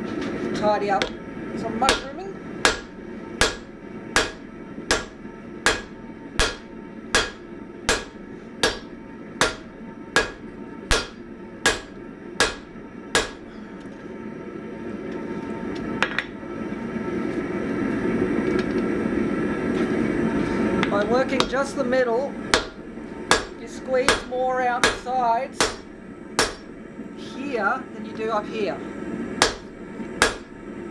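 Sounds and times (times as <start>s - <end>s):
hammer striking steel on anvil: 1.8s - 13.5s, 22.5s - 26.8s, 29.4s - 30.6s.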